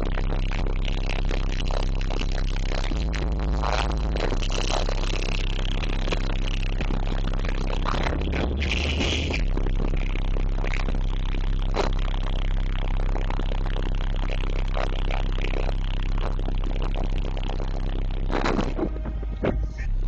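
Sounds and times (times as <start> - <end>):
loud deep bass from subwoofers: 0.0 - 20.0.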